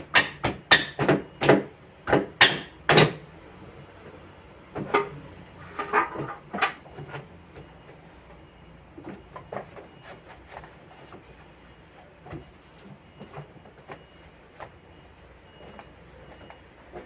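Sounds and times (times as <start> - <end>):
containers clattering in refrigerator: 4.8 - 6.8.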